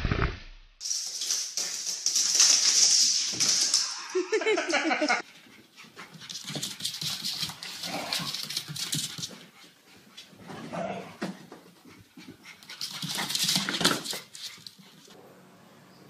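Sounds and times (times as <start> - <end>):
dog panting: 5.2 - 10.5, 11.2 - 15.2.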